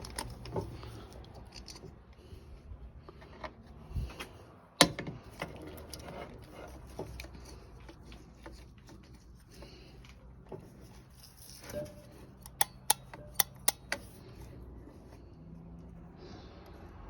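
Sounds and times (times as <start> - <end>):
hand tool clicks and metallic clatter: 0.0 - 2.4, 10.9 - 14.3.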